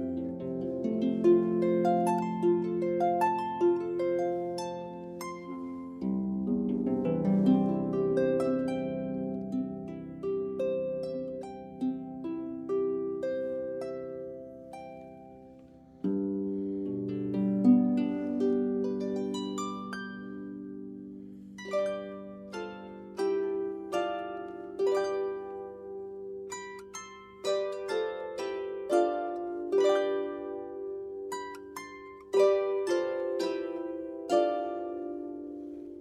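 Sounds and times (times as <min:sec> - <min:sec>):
harp playing slow melody: 0:00.0 - 0:36.0.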